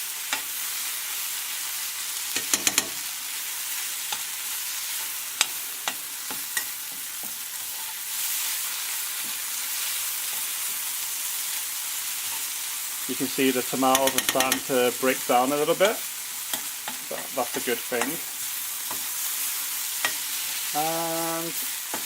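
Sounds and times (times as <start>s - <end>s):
food sizzling in frying pan: 0.0s - 22.0s
utensil knocking and scraping pan: 13.9s - 14.7s.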